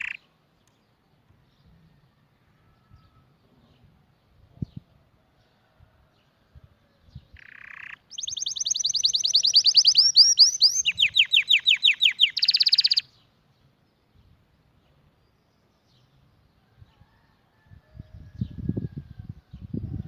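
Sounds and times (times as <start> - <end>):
canary singing trills: 0.0 - 0.4, 7.1 - 13.3.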